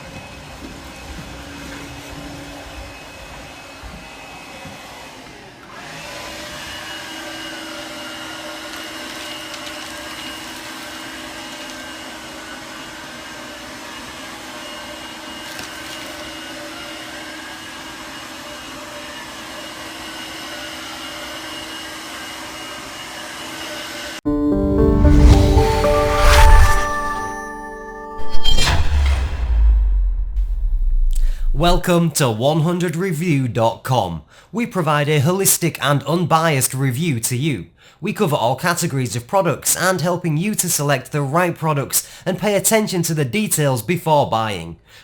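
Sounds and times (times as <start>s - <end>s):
vacuum cleaner motor whine: 0.0s - 24.2s.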